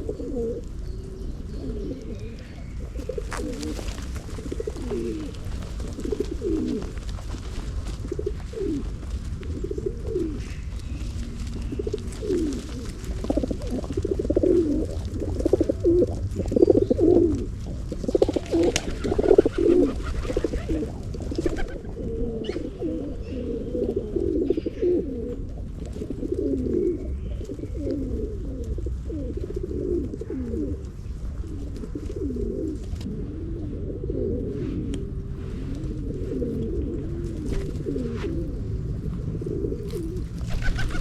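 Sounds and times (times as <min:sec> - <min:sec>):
low rumble: 0:00.0 - 0:19.3, 0:32.7 - 0:41.0
pigeons cooing: 0:00.0 - 0:41.0.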